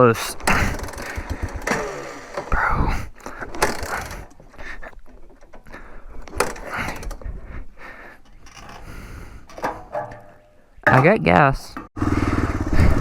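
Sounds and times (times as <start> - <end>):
engine kick-start attempts: 0.0 - 7.3, 12.0 - 13.0.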